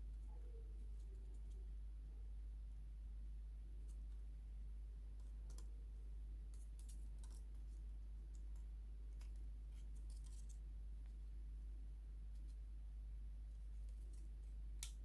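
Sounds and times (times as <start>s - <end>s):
steady low hum: 0.0s - 15.0s
small parts clicking and tapping: 5.1s - 5.8s, 6.4s - 11.7s, 13.5s - 15.0s.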